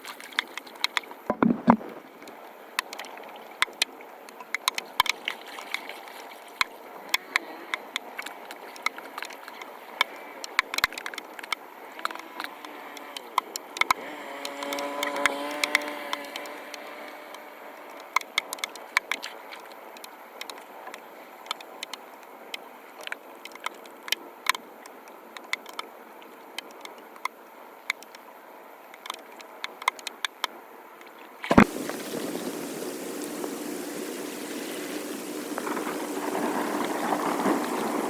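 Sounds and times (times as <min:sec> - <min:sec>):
water trickling and flowing: 0:00.0 - 0:25.4, 0:31.0 - 0:38.0
sharp clicks and knocks: 0:00.5 - 0:03.0
rushing water: 0:31.2 - 0:38.0.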